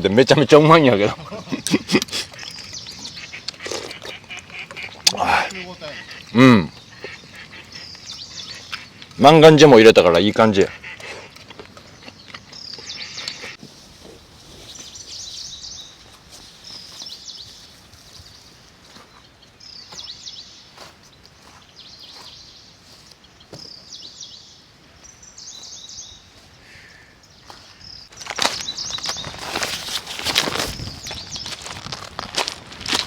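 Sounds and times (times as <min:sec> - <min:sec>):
bird singing high phrases: 0:02.4 - 0:09.7, 0:14.6 - 0:29.8.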